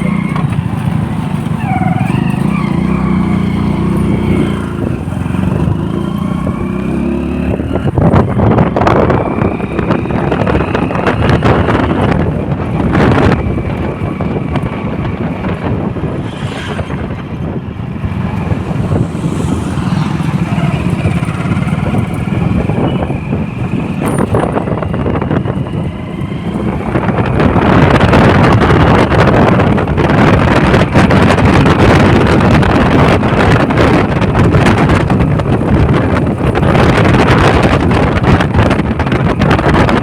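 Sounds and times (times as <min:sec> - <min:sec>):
motorcycle engine running: 0:00.0 - 0:40.0
wind rushing over microphone: 0:00.0 - 0:40.0.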